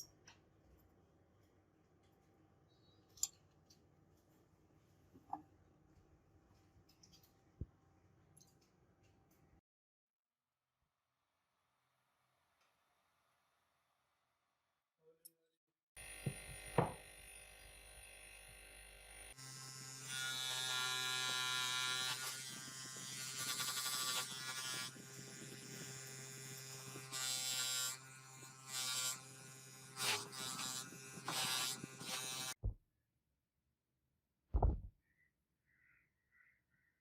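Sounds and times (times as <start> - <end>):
small electric motor buzzing: 16.0 - 32.6.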